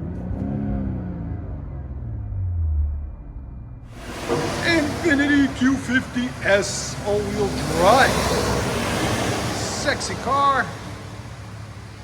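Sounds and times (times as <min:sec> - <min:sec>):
muffled exhaust drone: 0:03.9 - 0:12.0.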